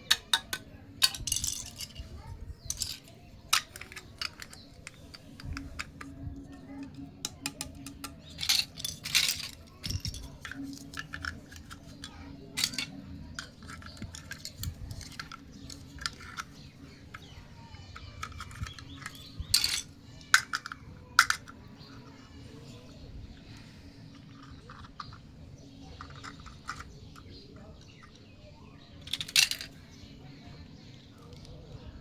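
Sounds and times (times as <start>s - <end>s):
plastic toy pieces clattering: 0.0s - 22.4s, 24.0s - 28.2s, 29.0s - 30.0s.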